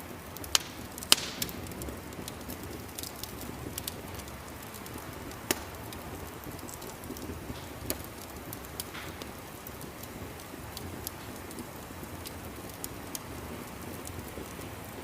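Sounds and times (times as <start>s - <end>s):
fireplace crackling: 0.0s - 15.0s.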